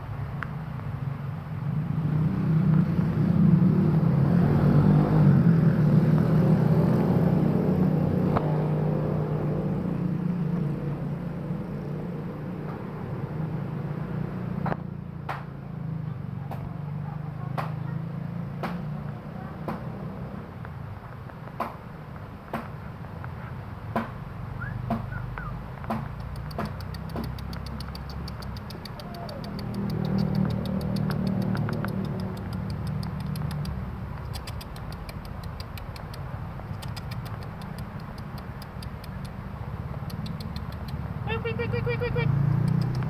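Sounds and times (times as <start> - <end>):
motorcycle engine running: 16.2 - 43.0
sharp clicks: 24.9 - 41.4, 42.0 - 43.0.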